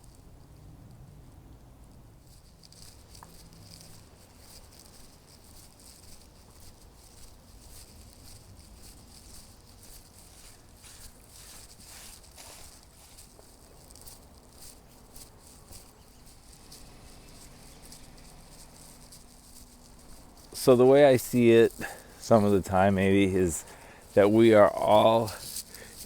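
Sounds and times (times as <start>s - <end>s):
low steady rumble: 12.7s - 26.0s
light rain patter: 15.9s - 26.0s.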